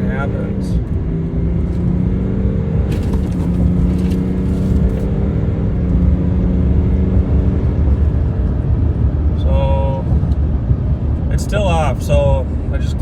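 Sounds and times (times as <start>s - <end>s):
diesel engine accelerating: 0.0s - 13.0s.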